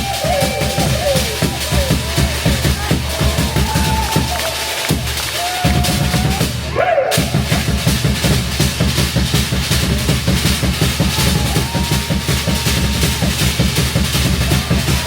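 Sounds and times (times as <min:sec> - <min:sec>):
fast driving drumming: 0:00.0 - 0:15.0.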